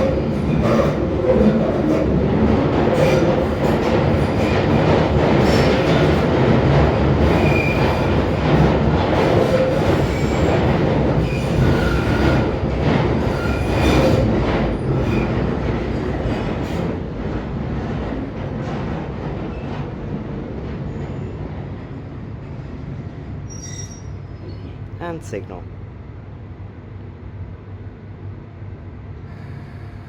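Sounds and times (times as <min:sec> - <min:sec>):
train wheel and running noise: 0:00.0 - 0:30.0
high-pitched wheel squeals: 0:23.5 - 0:24.6.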